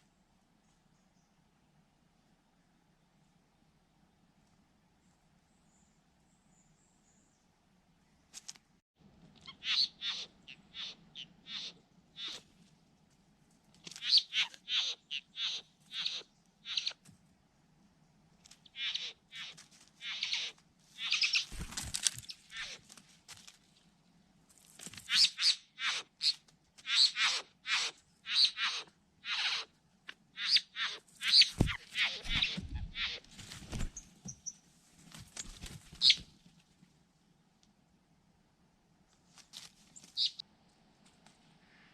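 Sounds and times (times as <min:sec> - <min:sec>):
birds calling: 0:09.4 - 0:12.4, 0:18.7 - 0:22.8, 0:30.4 - 0:34.6.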